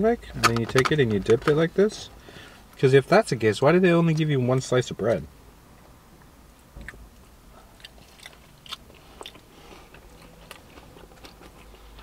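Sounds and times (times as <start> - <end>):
chewing crispy fried chicken: 7.5 - 12.0.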